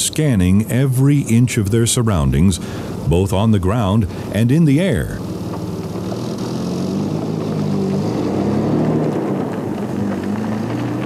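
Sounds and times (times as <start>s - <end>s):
ride noise: 0.0s - 11.0s
vehicle engine driving past: 5.2s - 11.0s.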